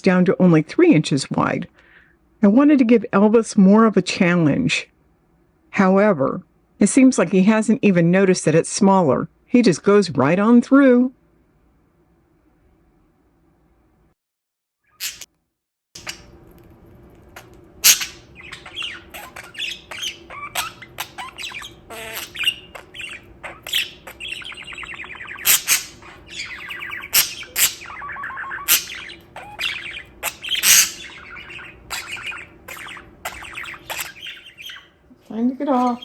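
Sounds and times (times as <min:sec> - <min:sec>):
budgerigar chattering: 0:16.0 - 0:16.3, 0:17.4 - 0:35.0.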